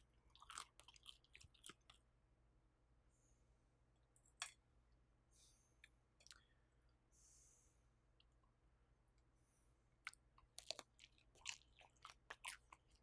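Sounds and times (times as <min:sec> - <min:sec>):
wet chewing: 0:00.3 - 0:02.0, 0:10.0 - 0:13.0.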